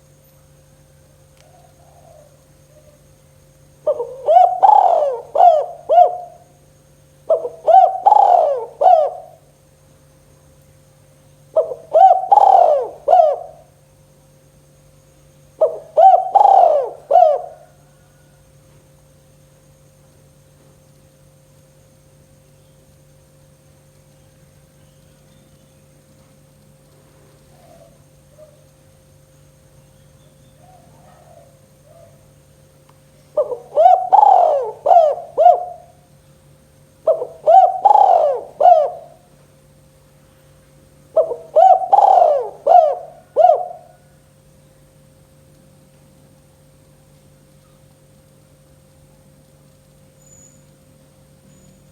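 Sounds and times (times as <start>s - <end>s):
dove cooing: 1.4s - 3.1s, 3.8s - 6.6s, 7.2s - 9.5s, 11.5s - 13.8s, 15.6s - 18.4s, 27.5s - 28.7s, 30.5s - 32.3s, 33.3s - 36.1s, 37.0s - 39.4s, 41.1s - 44.2s.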